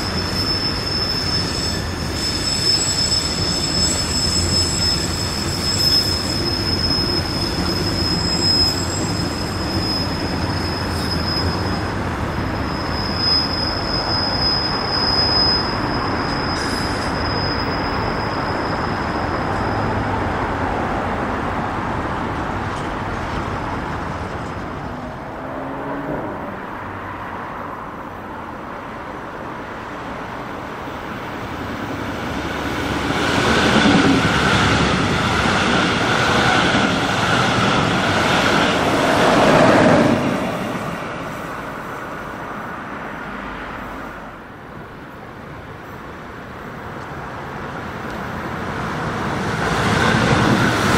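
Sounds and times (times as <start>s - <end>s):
high wheel squeal: 0.0s - 20.2s, 31.1s - 42.3s
another train: 0.0s - 50.9s
freight train rumbling past: 0.0s - 50.9s.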